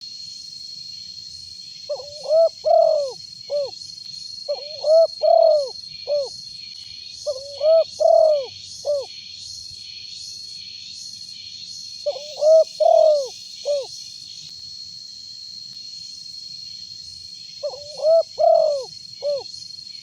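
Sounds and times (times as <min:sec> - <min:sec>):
dove cooing: 0:01.9 - 0:03.7, 0:04.5 - 0:06.3, 0:07.3 - 0:09.1, 0:12.1 - 0:13.9, 0:17.6 - 0:19.4.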